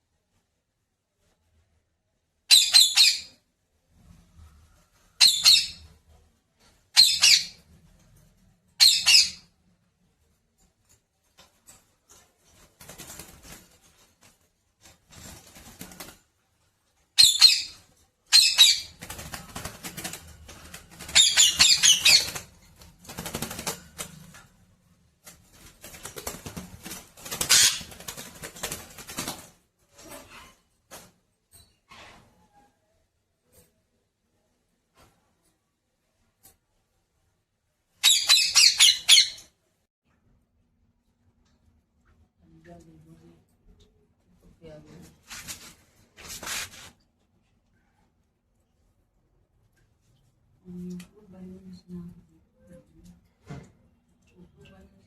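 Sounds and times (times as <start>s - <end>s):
scuffling noise: 45.2s - 47.0s.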